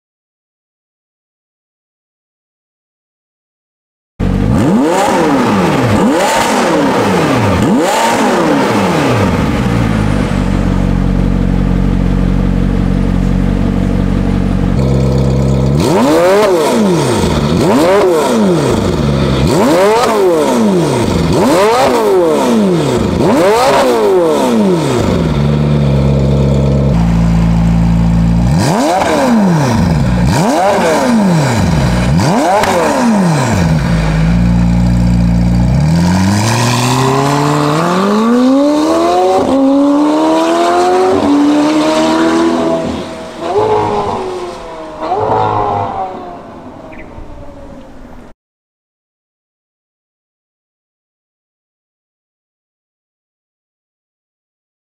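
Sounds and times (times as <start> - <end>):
car engine revving: 4.2 - 48.3
car engine idling: 8.7 - 16.1, 25.0 - 36.4.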